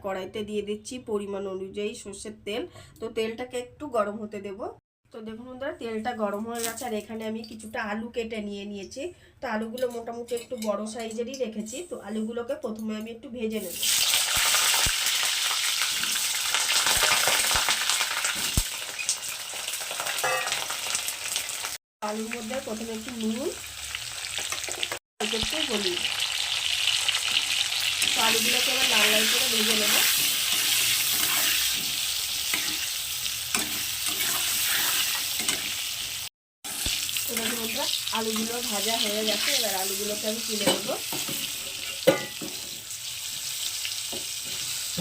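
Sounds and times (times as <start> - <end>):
potato frying in oil: 13.6 - 45.0.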